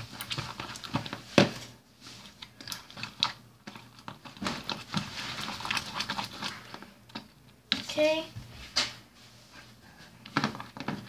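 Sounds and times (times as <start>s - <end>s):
slime squelching when stirred: 0.0s - 8.4s.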